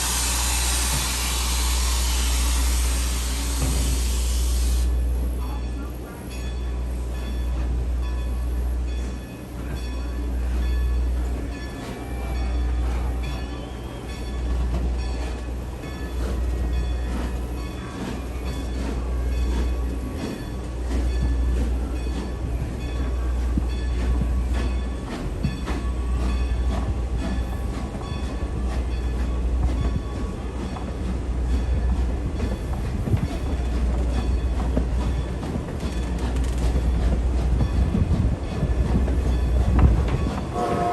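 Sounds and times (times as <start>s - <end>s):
train coach rumble: 0.0s - 40.9s
wheels clicking over rail joints: 32.1s - 40.6s.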